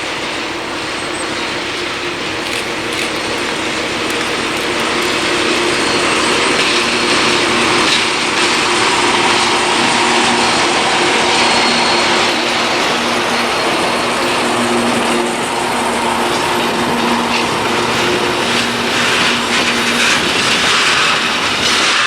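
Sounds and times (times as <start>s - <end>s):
diesel locomotive engine drone: 0.0s - 22.0s
empty wagons rattling and clanking: 1.0s - 9.3s.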